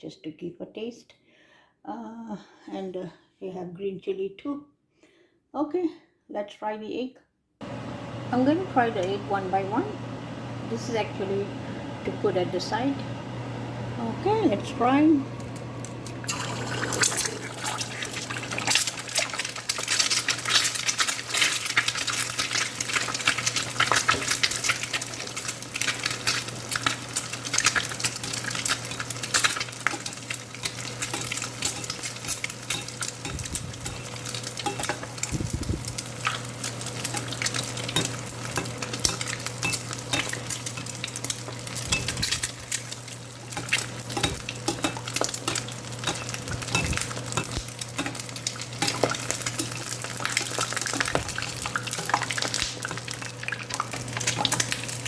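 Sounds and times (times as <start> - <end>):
egg frying in oil: 15.3 - 55.0.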